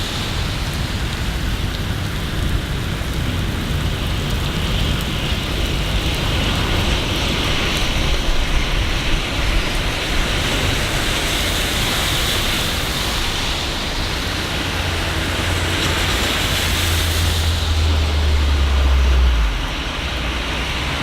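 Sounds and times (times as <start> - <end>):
steady rain falling: 0.0 - 21.0
low rumble: 13.7 - 21.0.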